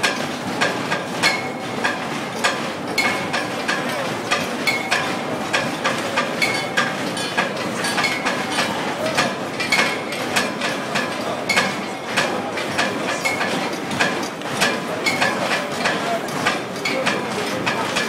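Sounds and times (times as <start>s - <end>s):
steady background noise: 0.0s - 18.0s
metal clanging with ringing tone: 2.4s - 5.3s, 6.4s - 8.8s.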